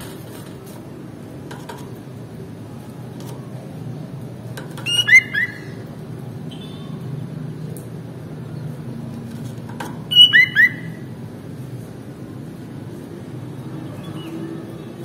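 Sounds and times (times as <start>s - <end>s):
bird calling: 4.8s - 5.9s, 10.0s - 11.1s.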